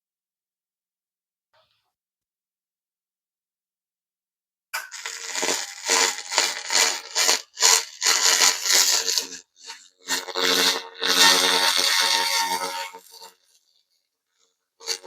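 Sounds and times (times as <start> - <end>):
laser crackling buzzing hiss: 4.8 - 13.4.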